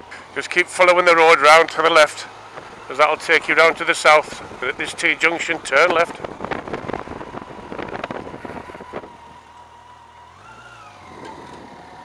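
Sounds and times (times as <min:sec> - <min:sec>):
motorcycle engine running: 0:00.0 - 0:12.0
wind buffeting microphone: 0:05.6 - 0:09.4.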